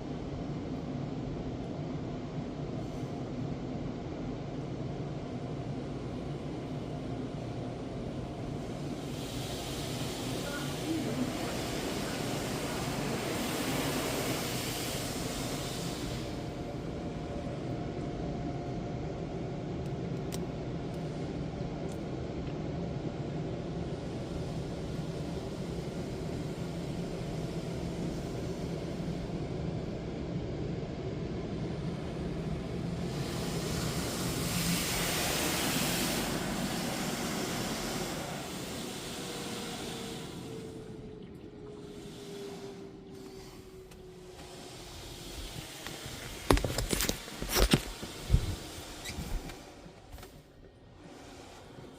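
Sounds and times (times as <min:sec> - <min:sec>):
car wash machine hum: 0:06.2 - 0:17.8, 0:31.5 - 0:51.9
hissing water spray: 0:09.0 - 0:16.4, 0:33.1 - 0:40.7, 0:44.4 - 0:49.5.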